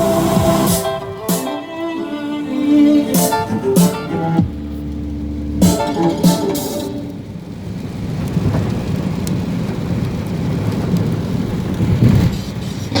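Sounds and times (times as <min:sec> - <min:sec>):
steady rain: 0:00.0 - 0:01.3, 0:02.2 - 0:13.0
thunder rumbling: 0:03.3 - 0:13.0.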